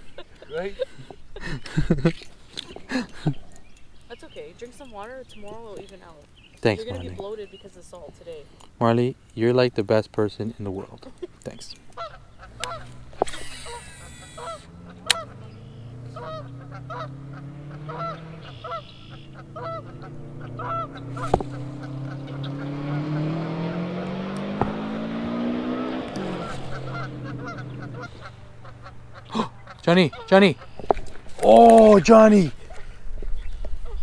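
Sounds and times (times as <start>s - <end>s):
geese honking: 4.0s - 34.0s
low engine drone: 11.7s - 32.6s.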